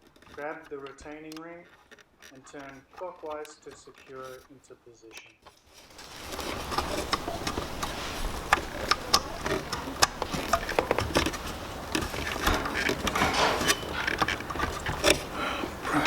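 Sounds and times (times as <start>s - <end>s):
small plastic and metal clicks: 0.0s - 5.8s.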